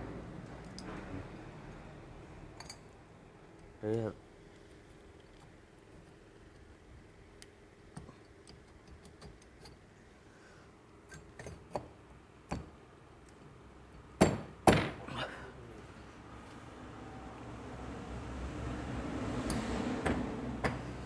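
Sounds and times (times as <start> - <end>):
metallic clicks of engine parts: 7.4 - 9.9.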